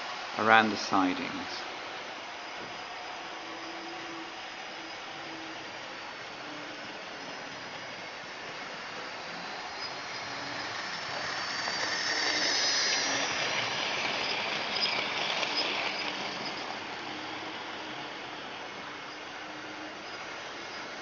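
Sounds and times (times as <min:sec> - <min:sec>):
model train wheels rattling: 0:08.8 - 0:18.0.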